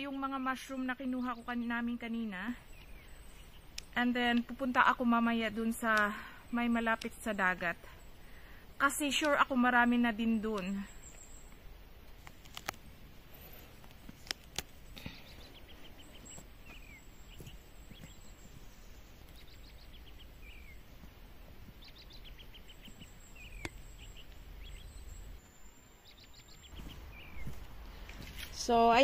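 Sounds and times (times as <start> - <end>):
low rumble of wind: 0.0 - 29.0
songbird singing: 0.0 - 29.0
sharp clicks: 9.1 - 9.5.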